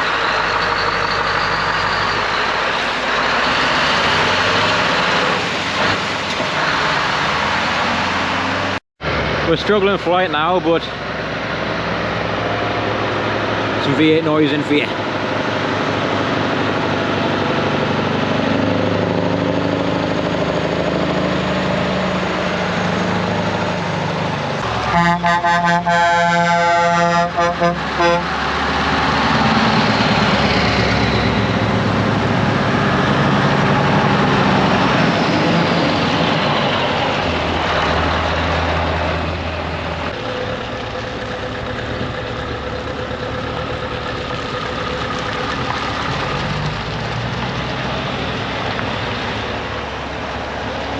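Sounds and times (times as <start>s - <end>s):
truck engines passing: 0.0s - 50.9s
air horn blasts: 24.6s - 28.4s.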